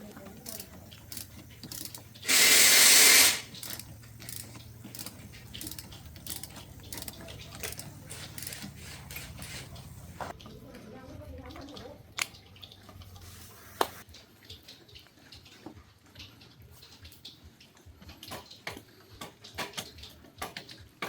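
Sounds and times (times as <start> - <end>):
hand tools clicking: 0.0 - 10.3
loud hiss: 2.2 - 3.7.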